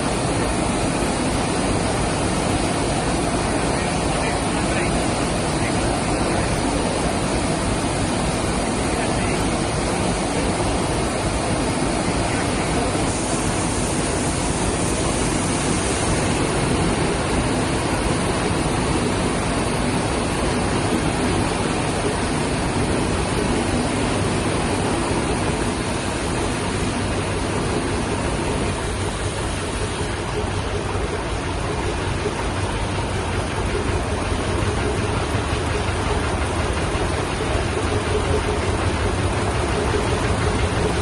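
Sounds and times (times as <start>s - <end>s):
large stationary engines running: 0.0s - 41.0s.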